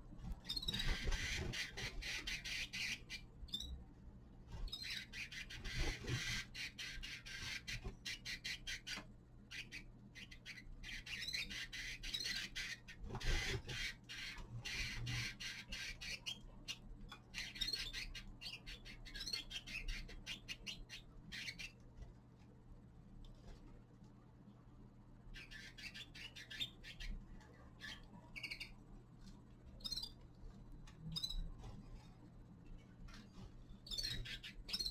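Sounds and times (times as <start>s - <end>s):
finches chirping and chattering: 0.4s - 3.8s, 4.6s - 21.8s, 25.3s - 28.8s, 29.8s - 30.2s, 31.0s - 31.6s, 33.7s - 34.9s.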